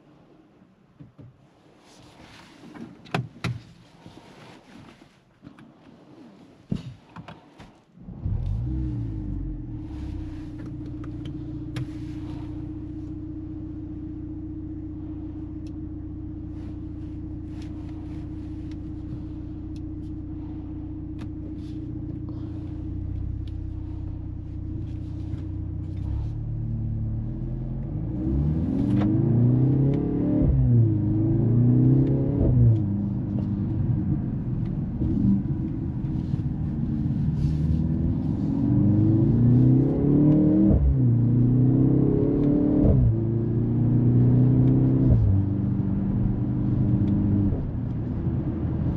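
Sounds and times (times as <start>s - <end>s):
car engine idling: 8.0s - 27.9s, 30.8s - 39.6s
car accelerating through gears: 25.9s - 48.9s.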